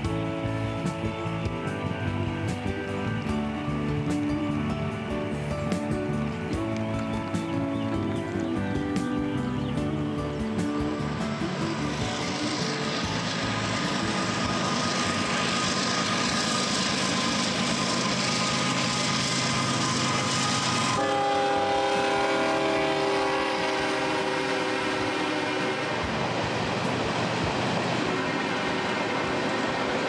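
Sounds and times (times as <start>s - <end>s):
freight train passing: 0.0s - 30.0s
train cars rolling on rails: 0.0s - 30.0s
locomotive horn blast: 11.1s - 26.4s, 27.8s - 30.0s.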